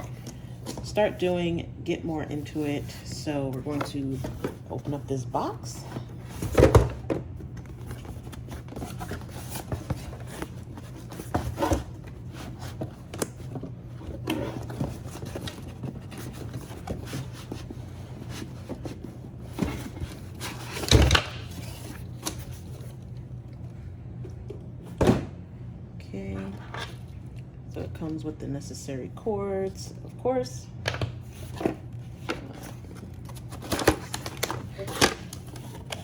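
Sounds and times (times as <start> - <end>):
steady low hum: 0.0 - 36.0
cardboard box rustling and scraping: 7.7 - 22.9.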